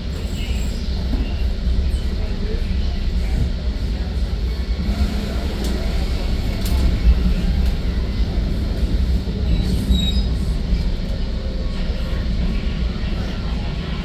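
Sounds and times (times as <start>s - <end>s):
train wheel squeal: 0.0s - 1.5s, 9.4s - 11.2s
train wheels rumbling on track: 0.0s - 14.0s.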